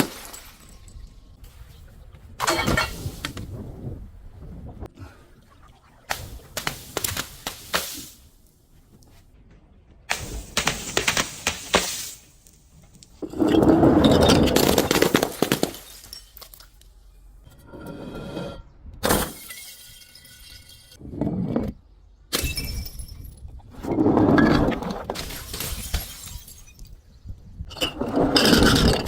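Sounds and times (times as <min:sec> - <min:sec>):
glass breaking: 0:00.0 - 0:01.2, 0:02.4 - 0:03.3, 0:13.2 - 0:16.8, 0:19.0 - 0:21.0, 0:25.2 - 0:27.0.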